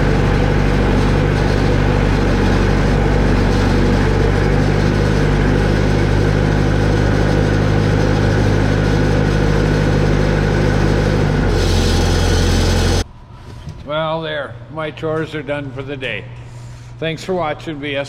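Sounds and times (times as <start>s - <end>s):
vehicle engine running: 0.0s - 13.1s.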